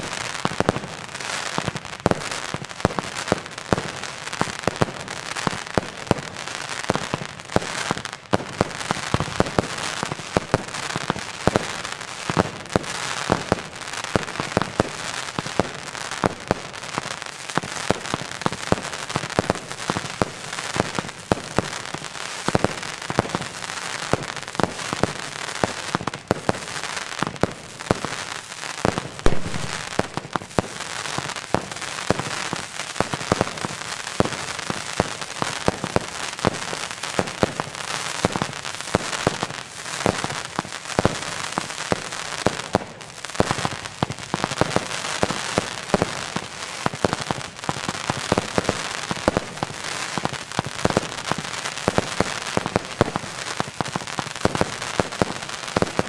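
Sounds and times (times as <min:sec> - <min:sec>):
fireworks launching and crackling: 0:00.0 - 0:56.0
loud firework bang: 0:29.2 - 0:30.1.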